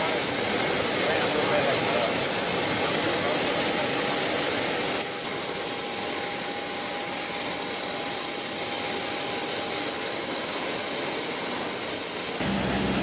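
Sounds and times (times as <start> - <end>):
jet aircraft hiss and whine: 0.0 - 13.0
low hum: 12.4 - 13.0.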